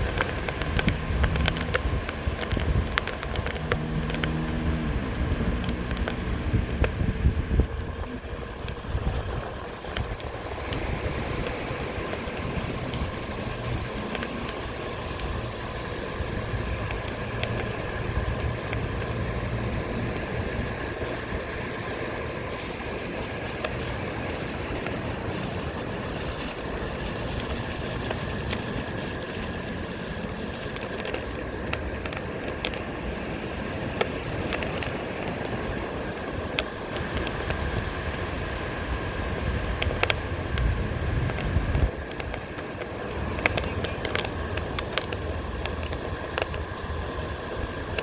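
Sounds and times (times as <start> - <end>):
electric motor whine: 0.0 - 48.0
wind buffeting microphone: 0.0 - 48.0.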